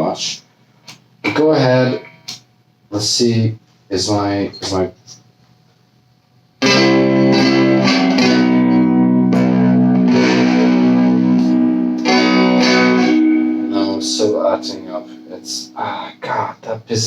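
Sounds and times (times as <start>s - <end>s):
distorted electric guitar chords: 1.2s - 2.4s, 6.6s - 16.6s.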